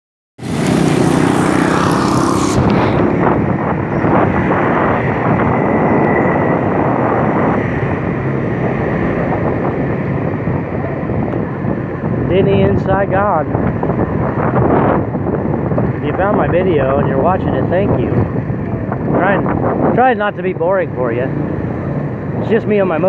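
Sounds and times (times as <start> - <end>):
motorbike engine: 0.4 - 12.1
road and traffic noise: 0.4 - 23.0.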